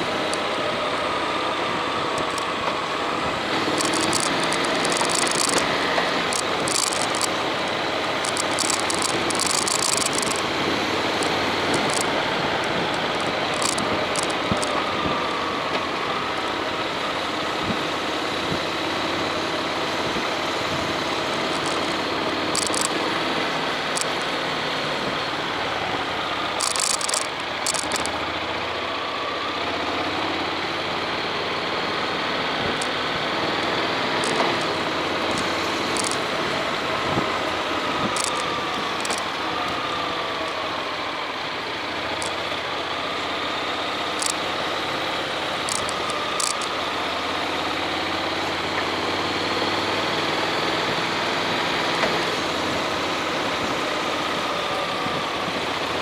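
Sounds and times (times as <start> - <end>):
motorcycle engine running: 0.0 - 41.0, 41.6 - 56.0
wind and road noise: 0.0 - 56.0
clicks and rattles: 2.2 - 2.5, 3.7 - 10.5, 11.1 - 14.9, 21.4 - 23.1, 26.6 - 28.2, 34.2 - 36.6, 38.0 - 39.3, 44.2 - 44.4, 45.6 - 46.8.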